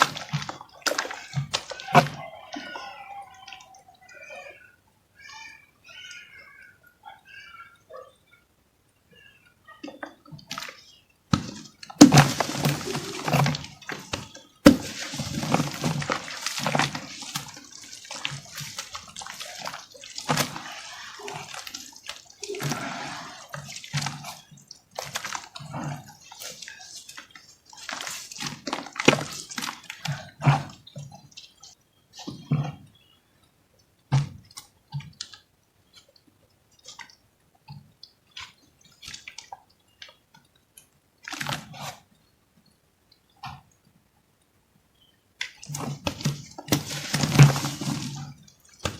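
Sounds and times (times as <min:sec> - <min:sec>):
wet crumbling crunches: 0:00.0 - 0:02.4, 0:10.5 - 0:31.8, 0:45.4 - 0:48.9
water dripping: 0:00.0 - 0:48.9.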